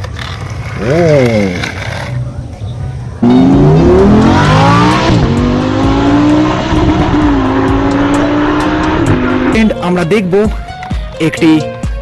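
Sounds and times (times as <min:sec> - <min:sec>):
racing car engine revving: 0:03.2 - 0:09.6.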